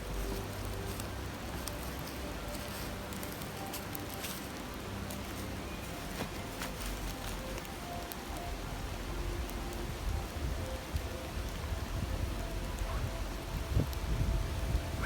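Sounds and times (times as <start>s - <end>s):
faint campfire crackles: 0.0s - 15.0s
river rushing: 0.0s - 15.0s.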